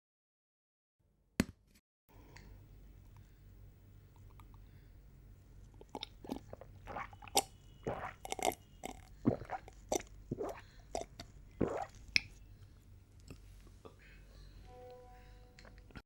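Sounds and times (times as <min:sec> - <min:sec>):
person gulping drink: 0:05.8 - 0:12.4.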